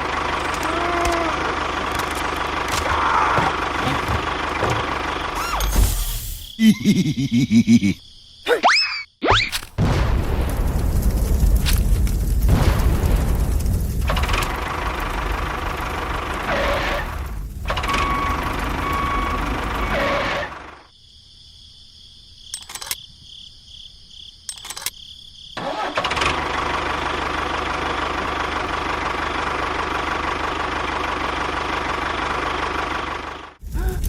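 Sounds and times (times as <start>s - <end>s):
small engine running: 0.0s - 5.8s, 14.1s - 20.9s, 25.6s - 34.0s
clicks: 24.5s - 25.0s.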